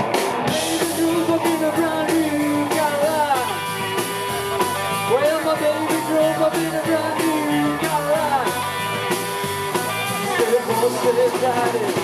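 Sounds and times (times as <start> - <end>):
electric guitar sliding notes: 0.0 - 11.1
rock and roll band playing: 0.0 - 12.0
walking bass line: 0.0 - 12.0.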